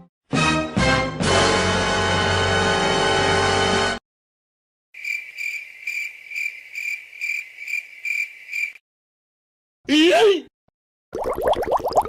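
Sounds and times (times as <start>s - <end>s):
music: 0.0s - 4.0s
cricket chirping: 5.0s - 8.8s.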